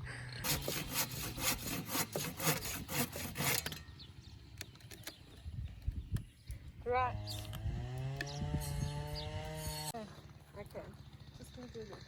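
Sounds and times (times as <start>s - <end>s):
hand saw cutting wood: 0.4s - 3.9s.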